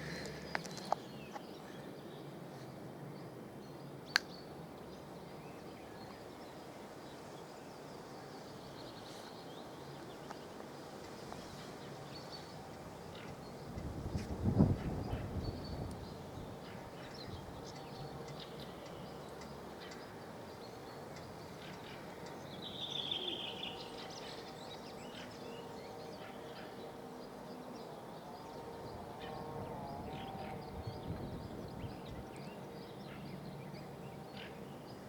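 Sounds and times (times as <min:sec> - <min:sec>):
faint outdoor background noise: 0:00.0 - 0:35.0.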